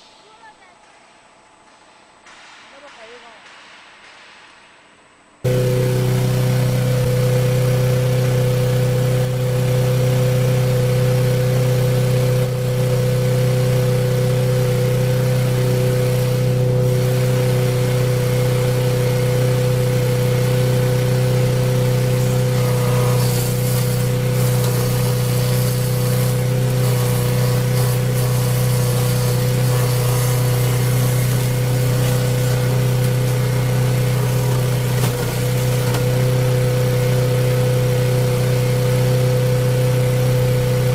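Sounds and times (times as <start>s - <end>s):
harsh hiss: 0.0s - 6.0s
machine engine running: 5.4s - 40.9s.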